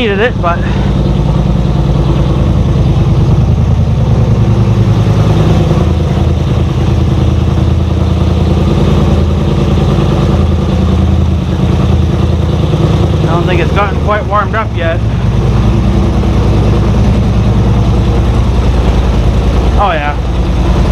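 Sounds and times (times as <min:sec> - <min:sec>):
engine idling loudly: 0:00.0 - 0:20.9.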